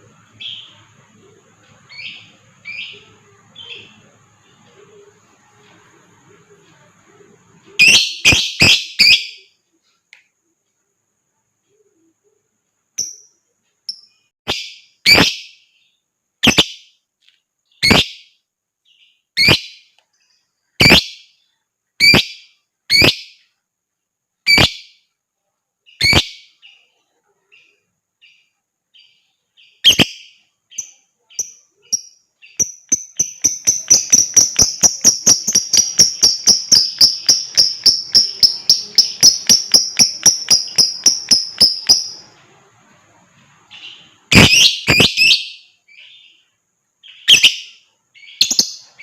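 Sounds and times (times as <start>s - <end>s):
lovebird shrill calls: 7.8s - 9.4s, 14.5s - 15.6s, 17.8s - 18.2s, 19.4s - 19.8s, 20.8s - 21.2s, 22.0s - 23.4s, 24.5s - 24.9s, 26.0s - 26.5s, 29.7s - 30.3s, 32.5s - 42.3s, 44.3s - 45.7s, 47.1s - 48.8s.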